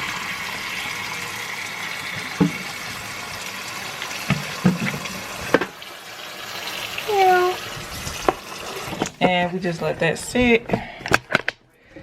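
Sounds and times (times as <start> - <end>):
tap water running into bowl: 0.0 - 9.4.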